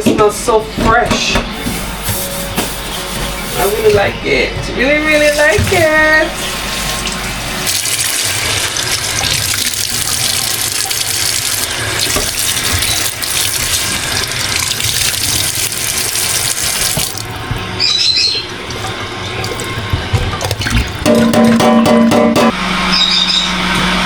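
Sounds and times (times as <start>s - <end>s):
tap water running into sink: 5.3s - 17.6s, 18.7s - 21.9s
brief high squeak: 17.8s - 18.4s, 22.9s - 23.6s.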